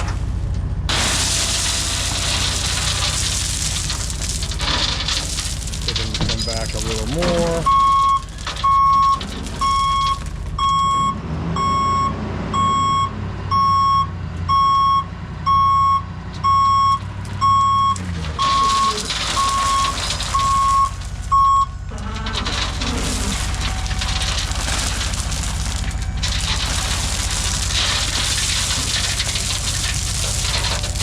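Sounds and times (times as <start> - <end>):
diesel engine hum: 0.0 - 31.0
truck backup alarm beeping: 7.4 - 22.6.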